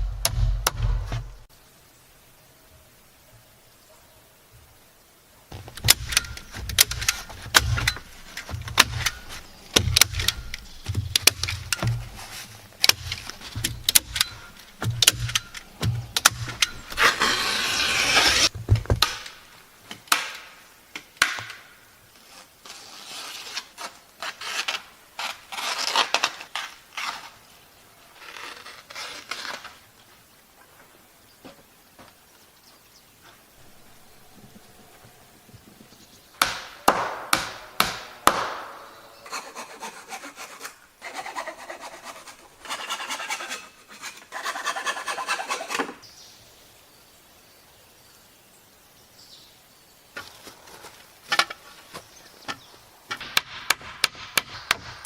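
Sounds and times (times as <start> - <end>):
wood knocking and clattering: 5.5 - 17.3, 18.4 - 20.3
soft scraping and rubbing: 5.6 - 18.8, 22.2 - 27.5, 28.1 - 29.9
harsh rasp: 5.9 - 18.5, 39.2 - 46.0.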